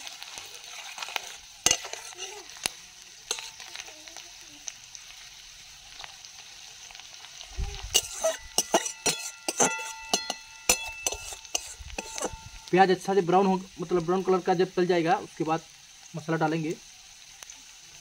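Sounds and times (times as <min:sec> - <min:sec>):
metal spatula scraping a pan: 0:00.0 - 0:03.9, 0:07.8 - 0:12.7
onions sizzling in a wok: 0:00.0 - 0:18.0.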